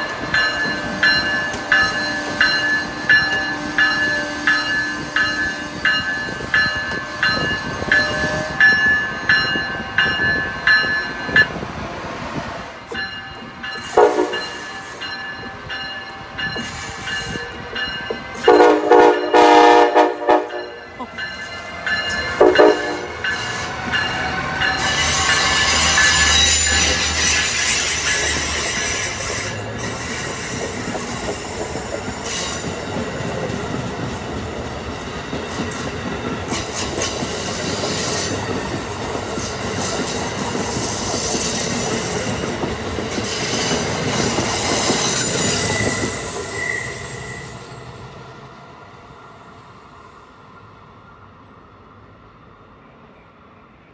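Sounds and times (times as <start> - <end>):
locomotive bell ringing: 0.0 - 11.6, 12.8 - 29.8
train wheels rolling on rails: 0.0 - 51.3
train horn blasts: 7.0 - 8.8, 13.8 - 14.7, 18.4 - 20.9, 22.4 - 23.2
wheel squeal: 24.8 - 31.2, 44.6 - 47.8.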